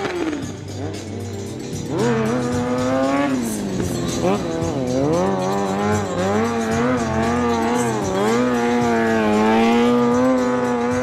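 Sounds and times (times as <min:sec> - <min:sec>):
motorcycle engine revving hard: 0:00.0 - 0:11.0.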